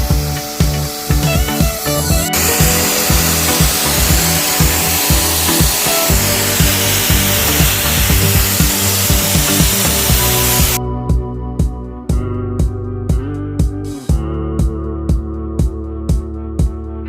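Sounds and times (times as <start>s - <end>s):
sandblaster hissing: 0.0s - 10.8s
background music with beat: 0.0s - 17.0s.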